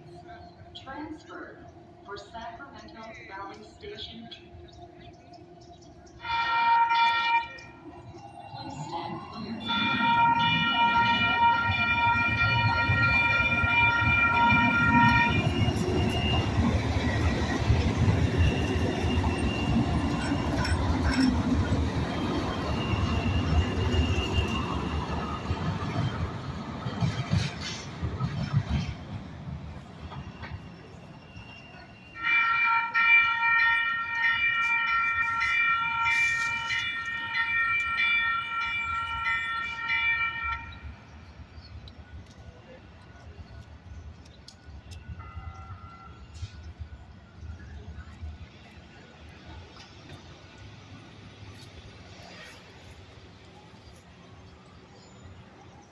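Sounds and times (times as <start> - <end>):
train warning tone: 0.0 - 43.7, 44.5 - 50.2
train rumbling over rails: 0.0 - 55.9
train horn blast: 6.2 - 7.8, 9.6 - 16.6, 32.2 - 40.8, 45.2 - 46.5.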